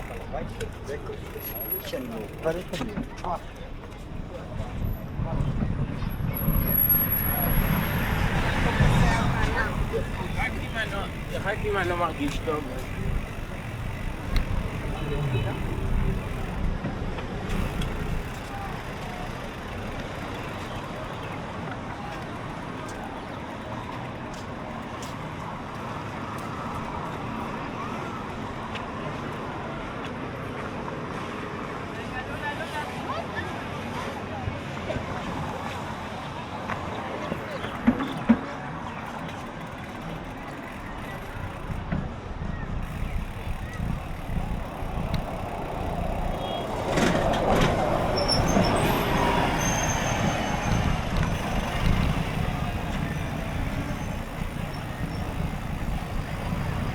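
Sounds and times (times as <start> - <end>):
road traffic noise: 0.0 - 56.9
wind rumble on microphone: 3.6 - 18.5, 41.4 - 56.9
motor vehicle passing: 6.0 - 21.0, 42.7 - 56.9
faint ticks: 42.9 - 47.6.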